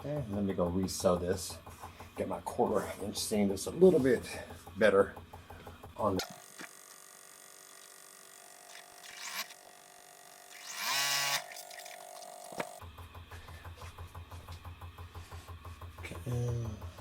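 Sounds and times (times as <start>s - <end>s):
sewing machine stitching: 8.7s - 9.6s, 10.5s - 12.8s.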